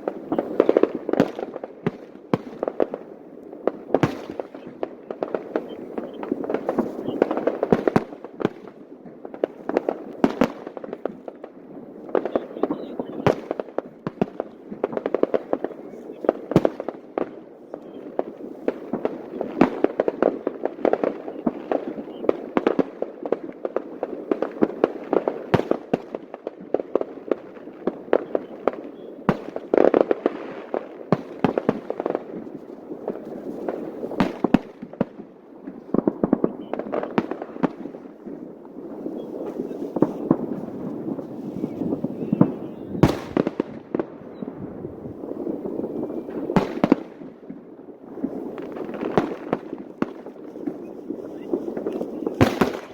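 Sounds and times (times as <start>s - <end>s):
fireworks bangs and pops: 0.0s - 52.9s
crowd voices: 12.2s - 13.3s.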